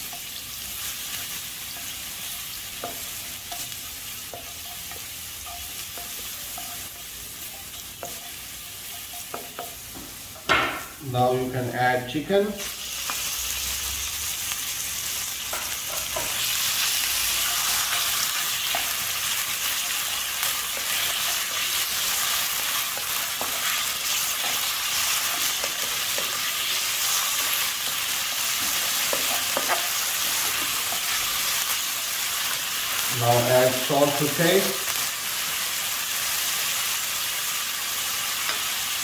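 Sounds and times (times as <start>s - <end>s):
chicken sizzling in hot oil: 0.0s - 39.0s
wooden spatula tapping and scraping: 1.1s - 11.0s, 19.7s - 31.6s.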